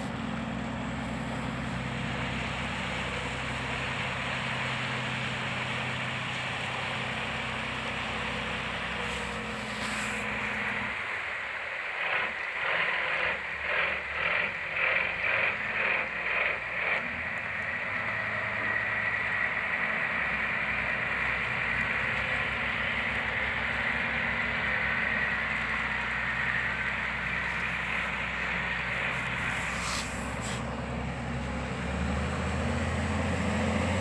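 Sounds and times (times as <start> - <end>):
boat engines running: 0.0 - 34.0.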